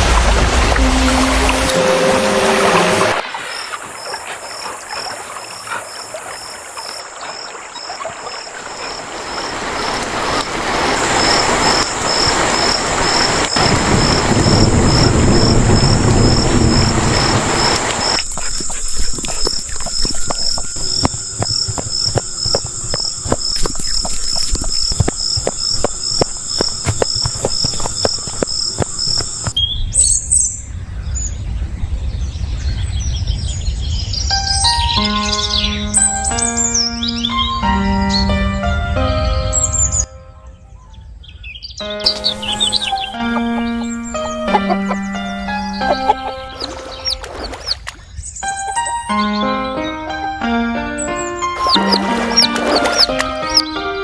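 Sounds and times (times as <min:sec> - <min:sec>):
rain: 0:00.0 - 0:29.6
insects chirping: 0:01.8 - 0:29.6, 0:41.8 - 0:49.0, 0:51.2 - 0:53.8
high insect trill: 0:03.3 - 0:29.6
light dripping patter: 0:03.5 - 0:29.6.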